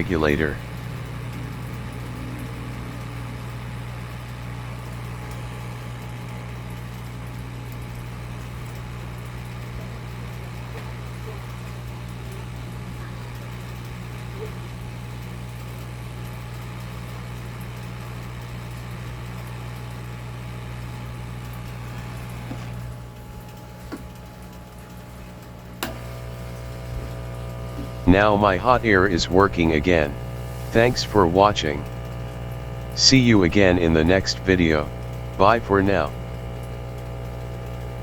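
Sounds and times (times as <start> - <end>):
hot air blower running: 30.2 - 31.0.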